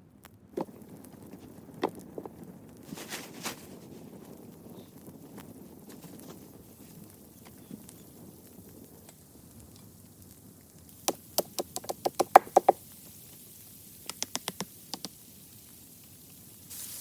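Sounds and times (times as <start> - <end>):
sharp knocks: 11.1 - 12.8.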